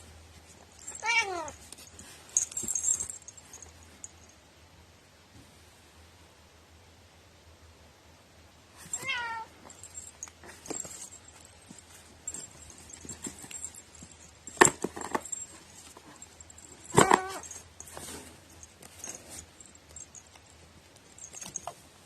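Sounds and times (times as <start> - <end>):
cat meowing: 1.0 - 1.6, 9.0 - 9.5.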